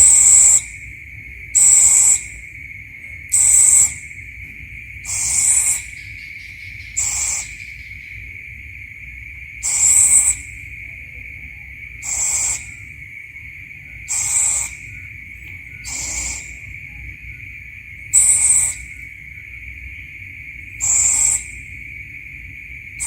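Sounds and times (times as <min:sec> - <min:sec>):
owl rasping calls: 0:00.0 - 0:00.9, 0:01.5 - 0:02.4, 0:03.3 - 0:04.2, 0:05.0 - 0:08.3, 0:09.6 - 0:10.7, 0:11.9 - 0:21.8
high insect drone: 0:00.0 - 0:23.0.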